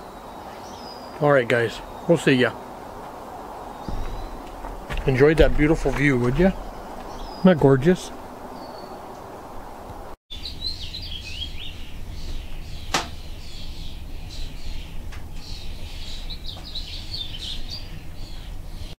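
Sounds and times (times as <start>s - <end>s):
small birds chirping and singing: 0.0s - 9.6s, 10.3s - 18.9s
steady low rumble: 3.8s - 8.6s.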